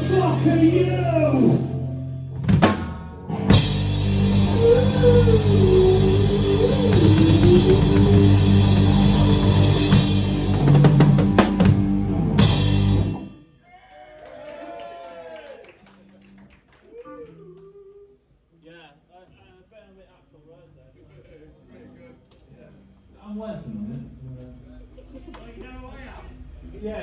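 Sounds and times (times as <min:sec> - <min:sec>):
live rock band playing: 0:00.0 - 0:13.5
bass drum thumps: 0:02.4 - 0:13.2
cymbals crashing: 0:03.5 - 0:13.5.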